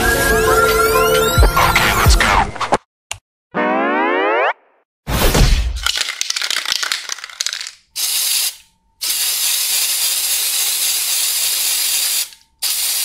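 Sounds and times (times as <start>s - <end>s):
spray can ball rattling: 5.8s - 13.0s
spray paint hissing: 7.0s - 13.0s.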